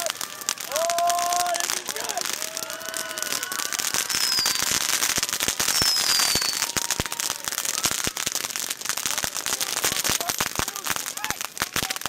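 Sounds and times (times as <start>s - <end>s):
high falling firework whistles: 0.0s - 9.0s
fireworks crackling: 0.0s - 12.0s.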